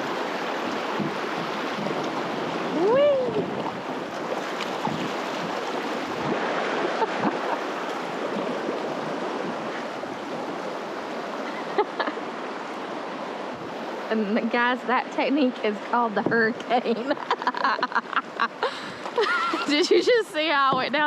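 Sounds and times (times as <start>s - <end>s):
rushing river water: 0.0s - 21.0s.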